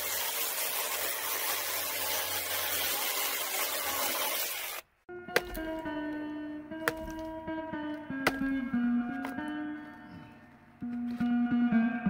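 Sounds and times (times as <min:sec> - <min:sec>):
guitar music: 0:05.1 - 0:12.0.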